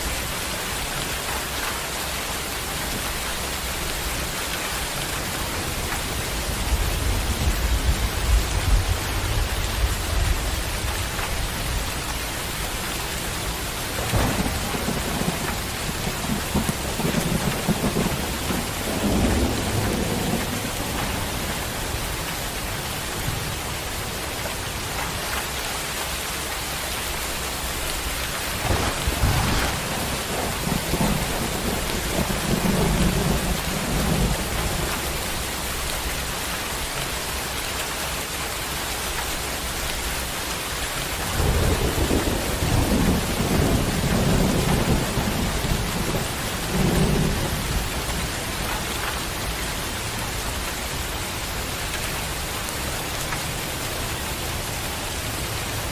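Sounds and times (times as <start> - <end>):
heavy rain pouring: 0.0 - 55.9
thunder rumbling: 2.6 - 24.2, 27.8 - 36.2, 41.2 - 51.2.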